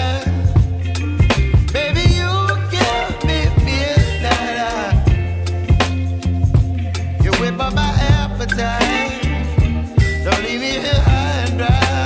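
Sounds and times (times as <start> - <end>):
person singing: 0.0 - 6.2, 7.1 - 12.0
bass: 0.0 - 12.0
drum beat: 0.0 - 12.0
pop song: 0.0 - 12.0.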